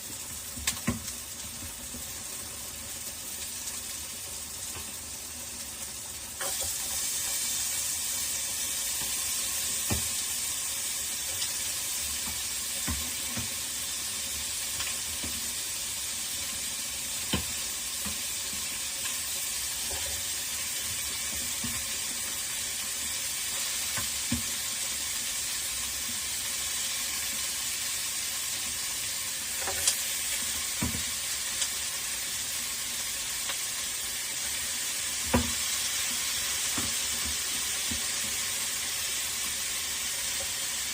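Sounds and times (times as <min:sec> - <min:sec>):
food sizzling in a pan: 0:00.0 - 0:40.9.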